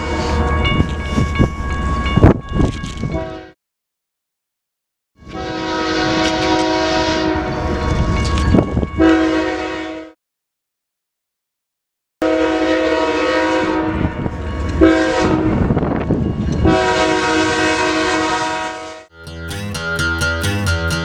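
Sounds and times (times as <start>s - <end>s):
train horn blasts: 3.1s - 3.5s, 5.2s - 7.8s, 9.0s - 10.1s, 12.2s - 14.2s, 14.8s - 15.6s, 16.6s - 19.1s
passing train rumble: 13.0s - 18.4s.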